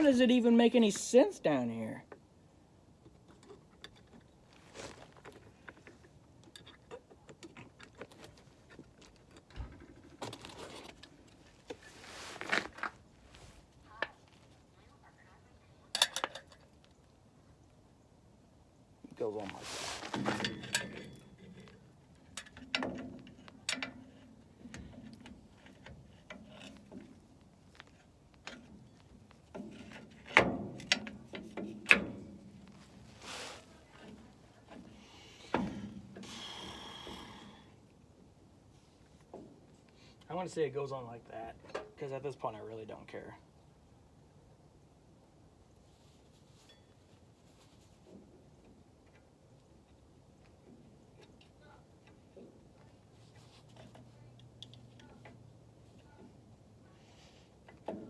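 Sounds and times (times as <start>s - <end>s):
metal hardware clicks and taps: 15.9s - 16.7s.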